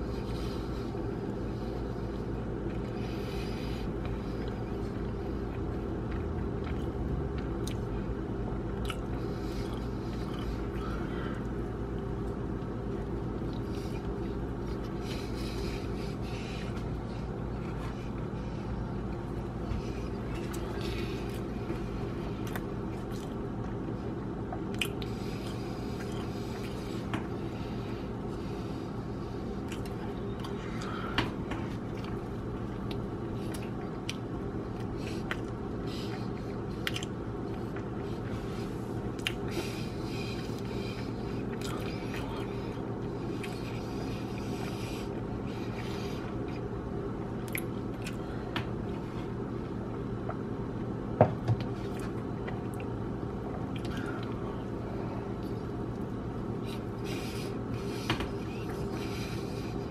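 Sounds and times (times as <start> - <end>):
steady low hum: 0.0 - 59.9
person chewing crunchy food: 3.8 - 27.1, 29.6 - 51.0.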